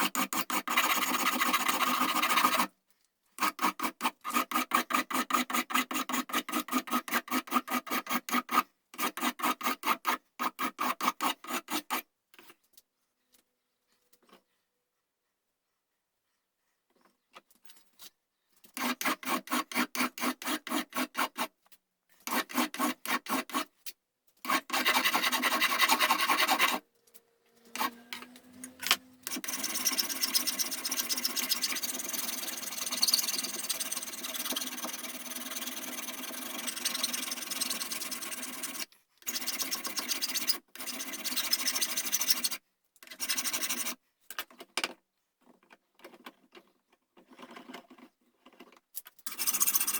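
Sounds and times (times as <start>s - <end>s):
rasp on wood: 0.0s - 2.7s, 18.8s - 21.5s, 22.3s - 23.7s, 24.5s - 26.8s, 29.2s - 42.6s, 43.2s - 44.0s, 49.3s - 49.9s.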